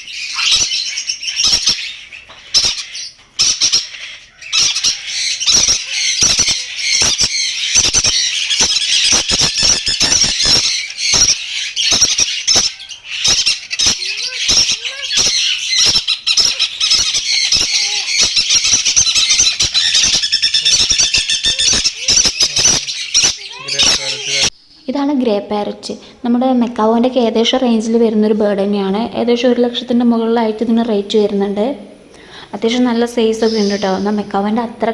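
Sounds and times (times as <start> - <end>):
parrots squawking and screeching: 0.0 - 24.5, 33.4 - 34.1.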